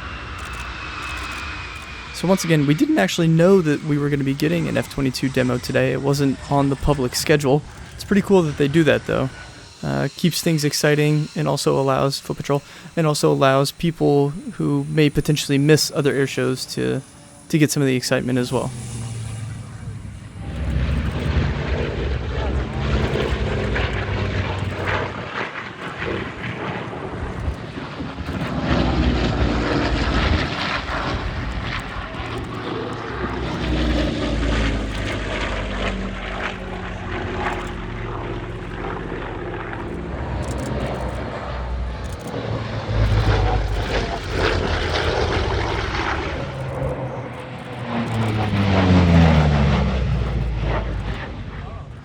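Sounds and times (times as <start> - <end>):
propeller plane passing: 0.0 - 52.0.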